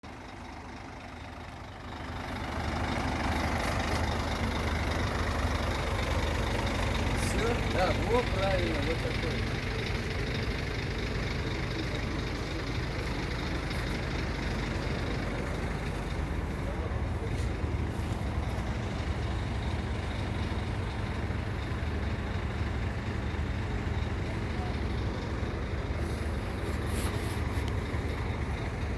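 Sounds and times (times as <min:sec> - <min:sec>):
diesel engine idling: 0:00.0 - 0:28.9.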